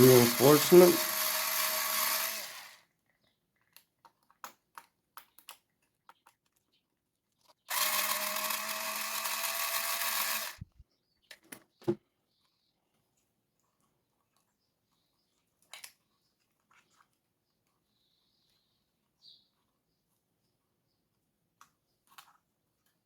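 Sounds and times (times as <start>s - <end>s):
electric screwdriver running: 0.0s - 2.8s, 7.7s - 10.7s
clicks of screws and plastic parts: 3.1s - 6.8s, 15.6s - 17.0s.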